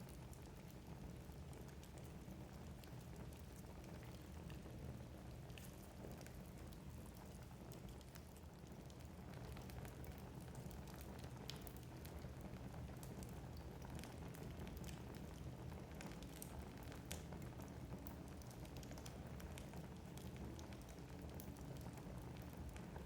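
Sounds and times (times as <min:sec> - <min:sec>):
burning logs crackling and popping: 0:00.0 - 0:23.0
low rumble of flames: 0:00.0 - 0:23.0.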